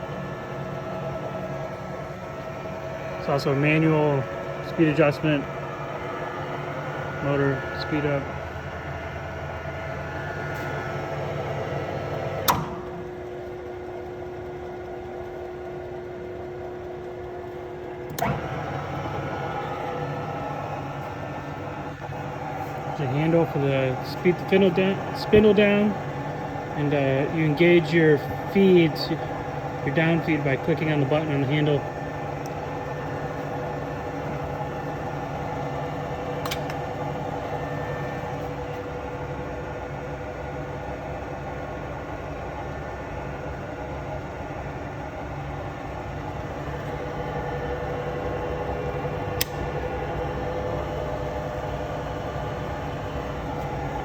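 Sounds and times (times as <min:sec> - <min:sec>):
drill press humming: 0:00.0 - 0:54.0
switch click: 0:12.4 - 0:12.9, 0:36.4 - 0:36.8, 0:49.4 - 0:49.7
light click: 0:49.4 - 0:49.7.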